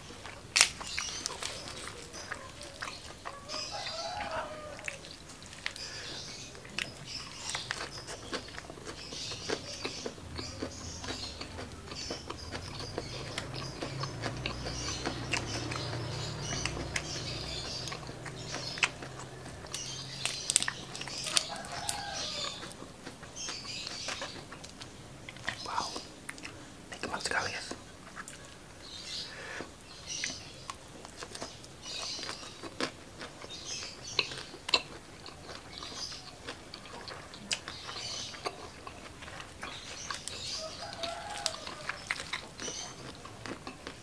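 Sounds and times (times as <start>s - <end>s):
chewing crunchy lettuce: 0.0s - 44.0s
rooster crowing: 3.2s - 5.1s, 21.2s - 22.8s, 40.5s - 42.2s.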